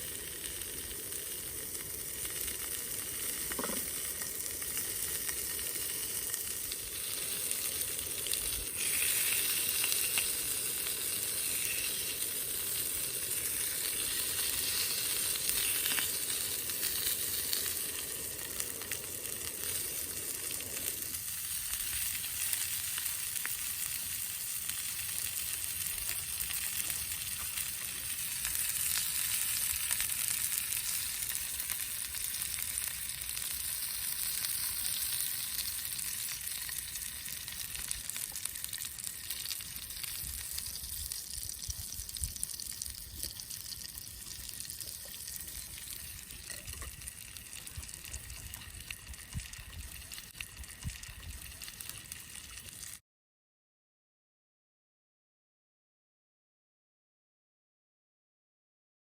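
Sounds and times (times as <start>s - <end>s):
food sizzling in a pan: 0.0s - 53.0s.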